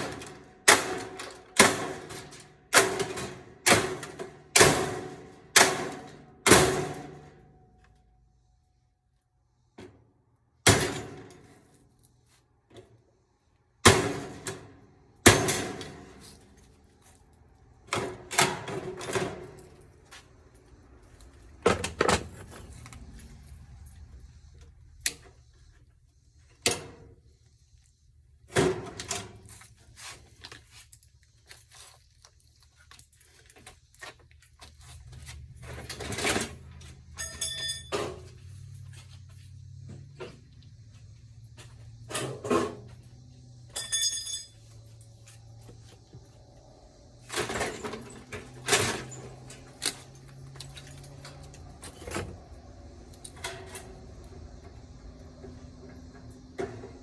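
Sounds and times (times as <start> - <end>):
metal parts knocking and clanking: 35.6 - 39.0, 43.6 - 44.6.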